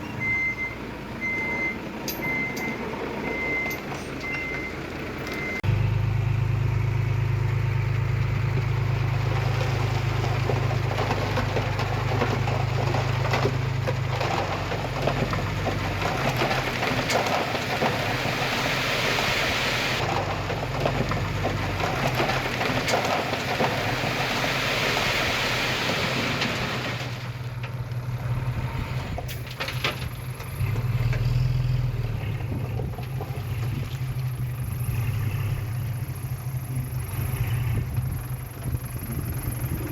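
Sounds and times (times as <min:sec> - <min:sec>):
diesel engine running: 0:00.0 - 0:39.9
soil pouring out: 0:08.7 - 0:27.4.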